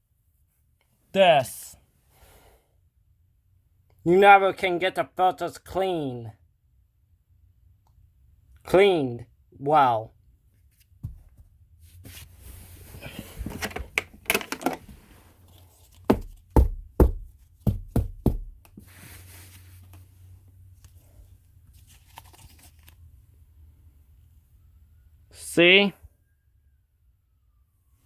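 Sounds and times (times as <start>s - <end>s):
vacuum filter rustling: 12.0s - 16.5s.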